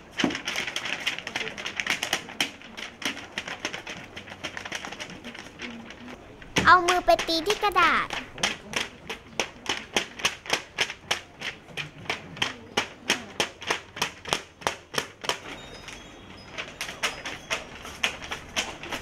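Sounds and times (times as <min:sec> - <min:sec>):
hand slapping paper: 0:06.6 - 0:15.4.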